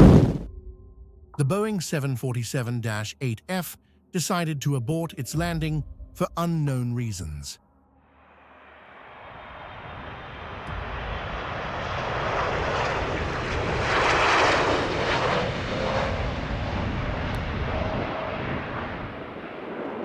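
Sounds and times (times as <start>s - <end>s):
jet engines roaring: 8.6s - 20.0s.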